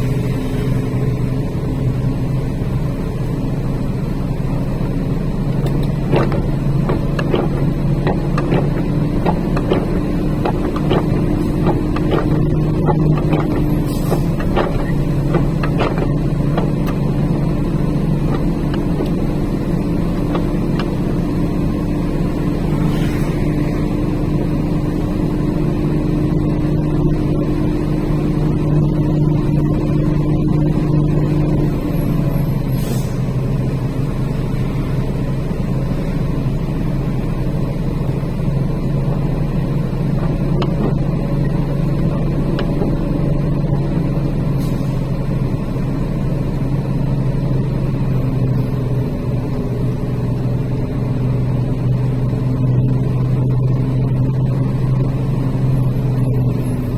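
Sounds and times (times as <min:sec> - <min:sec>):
truck diesel engine running: 0:00.0 - 0:56.9.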